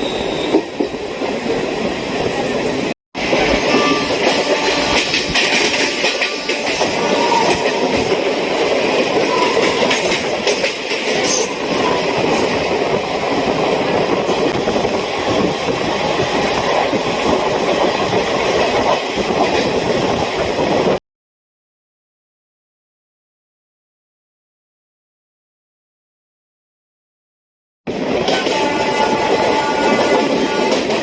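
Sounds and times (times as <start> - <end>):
train wheels rumbling and rattling: 0.0 - 21.0, 27.9 - 31.0.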